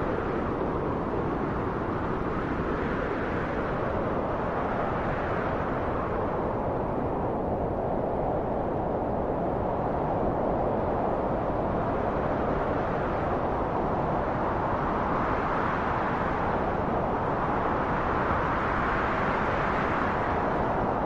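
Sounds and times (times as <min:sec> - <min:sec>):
steady rushing wind: 0:00.0 - 0:21.0.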